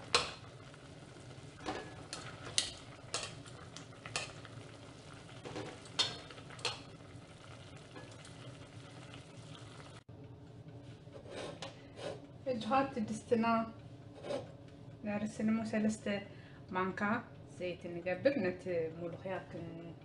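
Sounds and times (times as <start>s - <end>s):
food sizzling in a pot: 0.0s - 10.1s.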